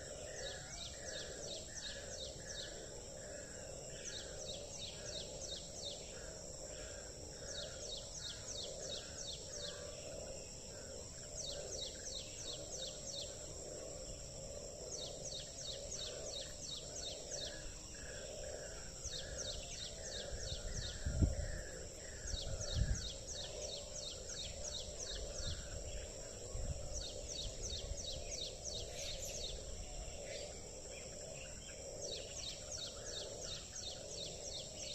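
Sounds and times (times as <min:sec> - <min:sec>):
frogs croaking: 0:00.0 - 0:34.9
high insect drone: 0:00.0 - 0:34.9
wind rumbling on microphone: 0:18.5 - 0:23.9, 0:24.5 - 0:30.2.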